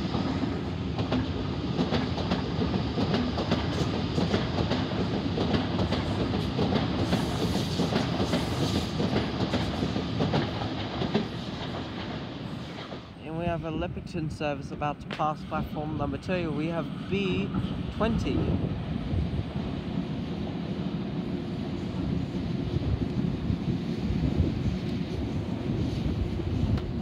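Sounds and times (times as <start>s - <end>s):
train wheels clicking over track: 0.0s - 13.2s
electric train running past: 0.0s - 27.0s.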